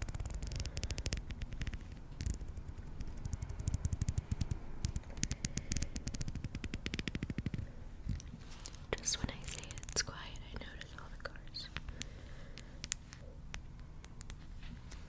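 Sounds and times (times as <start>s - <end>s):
sharp little clicks: 0.0s - 8.8s
crackling and scratching at microphone: 0.0s - 13.3s.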